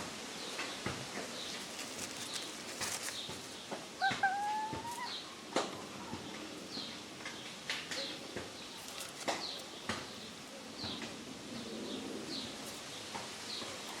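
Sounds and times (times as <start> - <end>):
chicks peeping: 0.5 - 11.1.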